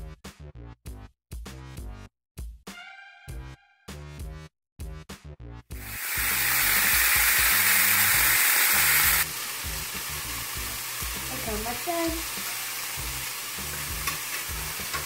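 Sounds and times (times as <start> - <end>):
chicken sizzling in a skillet: 5.8 - 15.0.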